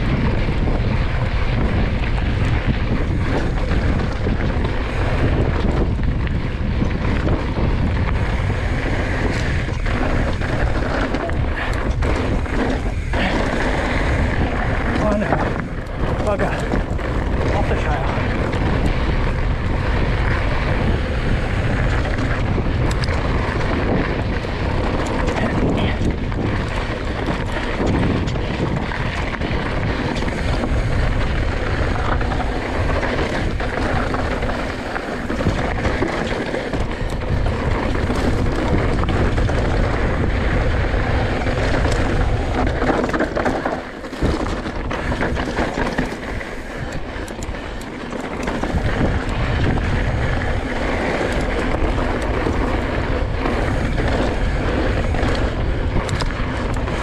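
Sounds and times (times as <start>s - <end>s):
tyre noise on rocky trail: 0.0s - 57.0s
wind buffeting microphone: 0.0s - 57.0s
bike rattling knocks: 19.8s - 57.0s.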